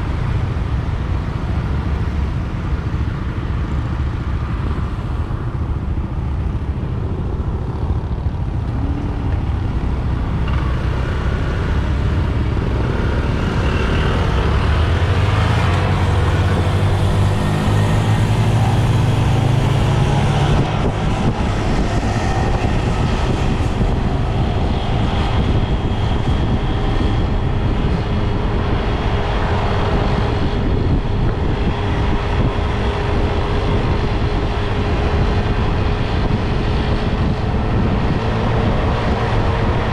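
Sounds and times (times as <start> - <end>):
traffic noise: 0.0 - 39.9
wind rushing over microphone: 0.0 - 39.9
motorbike engine: 8.4 - 21.8.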